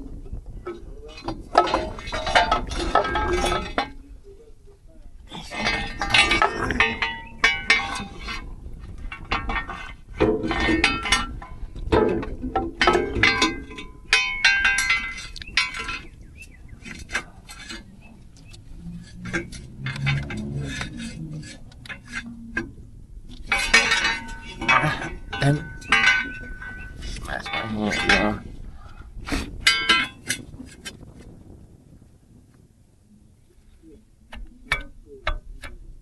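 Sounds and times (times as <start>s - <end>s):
metal tools clinking: 5.3s - 8.5s, 12.8s - 22.3s, 23.4s - 28.5s.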